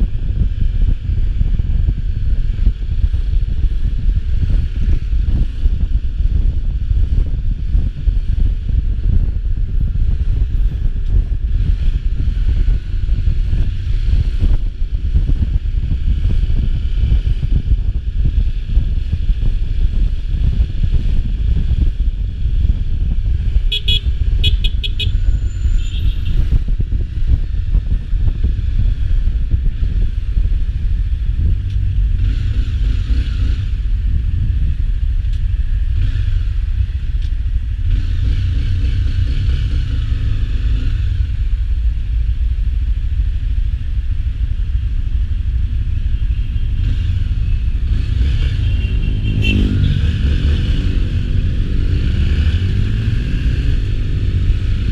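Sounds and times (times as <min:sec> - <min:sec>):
engine and wind rumble: 0:00.0 - 0:54.9
vehicles passing: 0:00.0 - 0:54.9.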